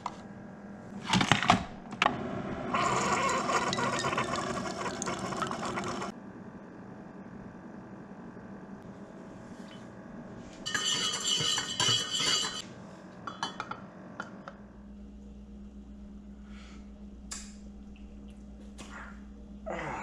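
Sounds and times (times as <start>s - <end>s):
steady low hum: 4.3s - 20.0s
hard objects clinking: 10.7s - 12.6s.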